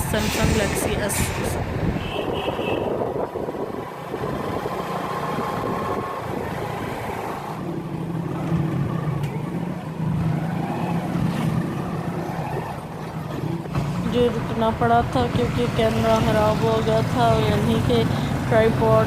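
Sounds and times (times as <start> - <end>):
wind noise: 0.0 - 16.4
road noise: 0.0 - 19.0.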